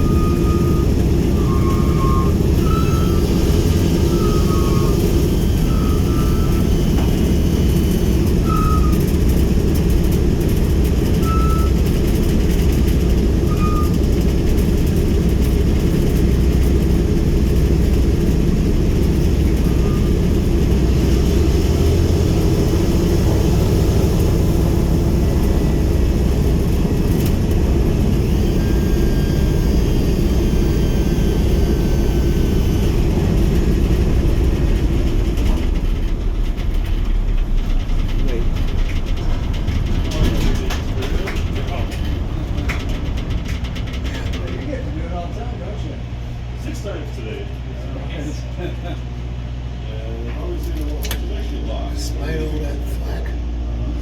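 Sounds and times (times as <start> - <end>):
high squeaks: 0.0 - 6.8
aircraft radial engines droning: 0.0 - 54.0.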